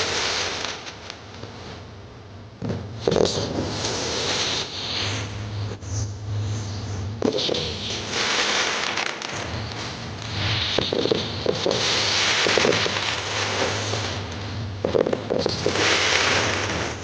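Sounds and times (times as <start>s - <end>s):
fireworks crackling: 0.0s - 1.8s, 2.6s - 4.7s, 7.2s - 17.0s
fireworks bangs: 7.2s - 17.0s.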